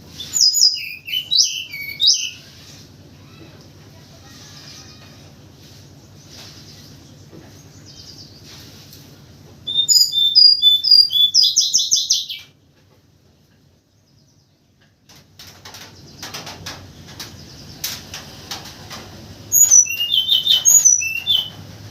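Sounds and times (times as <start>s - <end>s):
songbird whistling and trilling: 0.2s - 2.5s, 9.6s - 12.5s, 19.5s - 21.6s
clicks and rustles: 14.8s - 19.4s.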